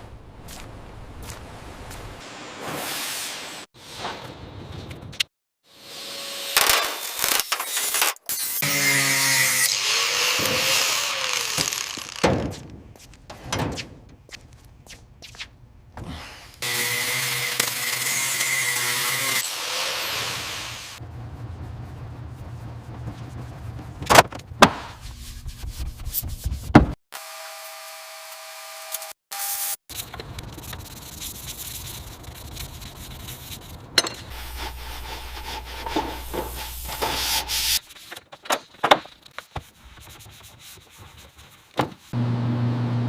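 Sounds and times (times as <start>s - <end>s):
sanding a surface: 29.9s - 37.9s, 39.7s - 42.1s.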